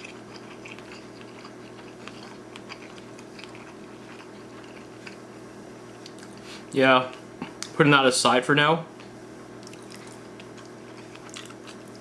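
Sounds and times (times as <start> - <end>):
person chewing: 0.0 - 6.6, 9.6 - 12.0.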